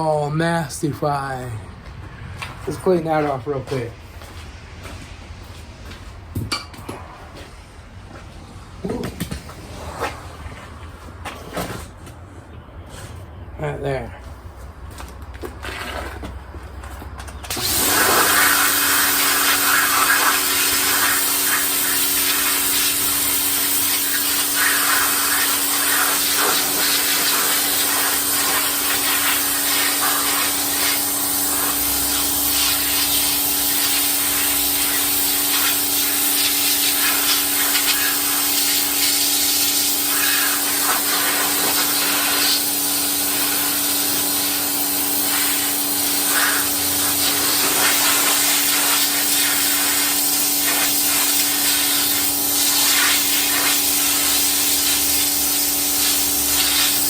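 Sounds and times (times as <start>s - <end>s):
pressure washer motor hum: 17.4s - 57.0s
water spray hissing: 17.5s - 57.0s.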